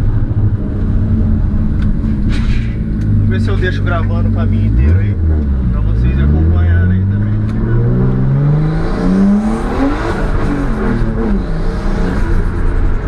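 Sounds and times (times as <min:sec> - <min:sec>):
turbocharged car engine accelerating: 0:02.9 - 0:13.0.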